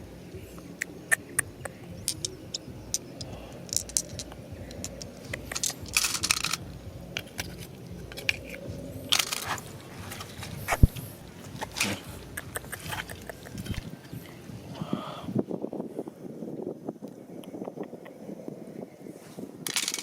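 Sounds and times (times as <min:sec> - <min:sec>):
stones clicking together: 0:00.6 - 0:13.9, 0:19.7 - 0:20.0
gravel scraping: 0:02.1 - 0:14.2.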